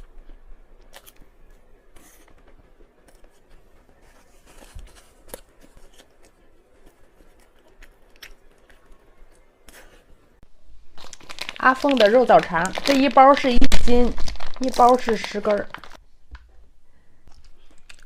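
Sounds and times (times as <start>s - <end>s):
chewing crunches: 0.0s - 3.3s, 5.2s - 9.8s, 17.3s - 18.0s
small handling noises: 1.9s - 10.3s.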